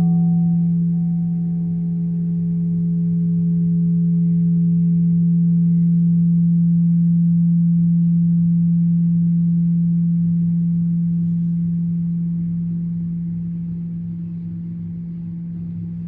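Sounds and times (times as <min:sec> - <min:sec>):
high ringing overtone: 0:00.0 - 0:04.0
deep ringing tone: 0:00.0 - 0:16.0.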